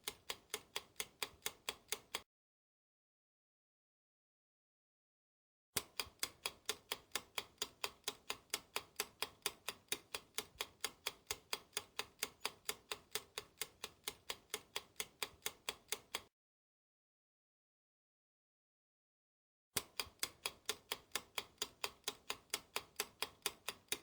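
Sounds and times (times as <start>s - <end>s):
clock-like ticking: 0.0s - 2.2s, 5.8s - 16.3s, 19.8s - 24.0s.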